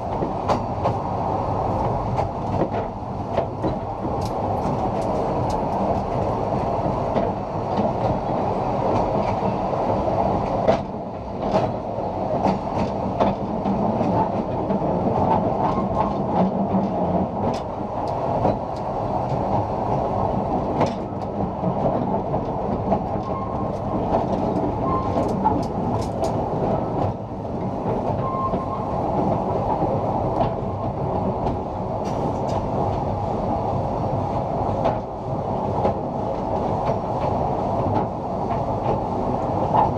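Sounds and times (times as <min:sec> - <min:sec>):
train wheels rumbling on rail: 0:00.0 - 0:39.9
wheels clicking over rail joints: 0:12.4 - 0:30.6.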